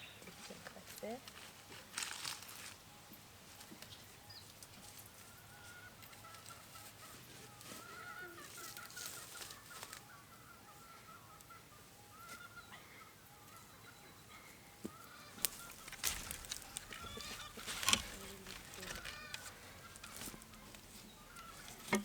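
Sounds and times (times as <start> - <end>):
poultry calling: 3.8 - 22.0
brief rustle: 15.4 - 22.0.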